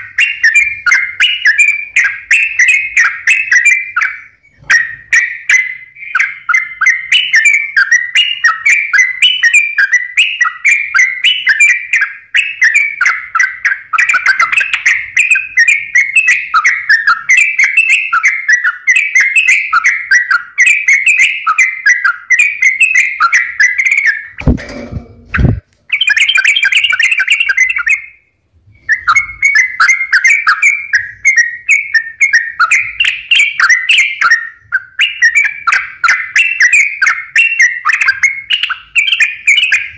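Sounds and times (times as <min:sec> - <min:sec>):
bulbul singing: 0:00.0 - 0:39.9
low thud: 0:24.4 - 0:25.6.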